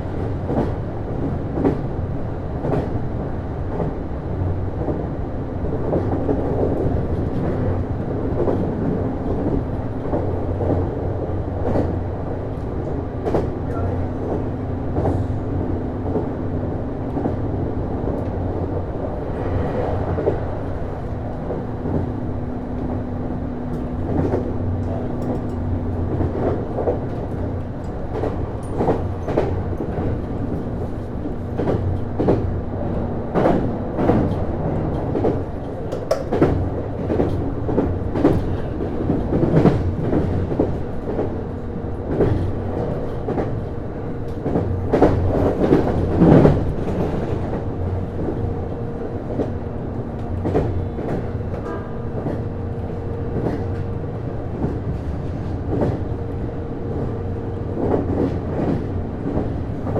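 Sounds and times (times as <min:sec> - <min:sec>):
train running noise: 0:00.0 - 0:59.9
wheels clicking over rail joints: 0:34.0 - 0:38.8.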